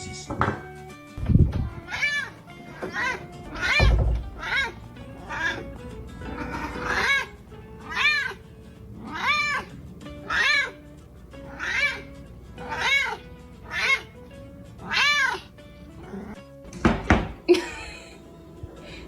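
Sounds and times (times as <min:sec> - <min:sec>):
cat meowing: 0:01.6 - 0:16.4.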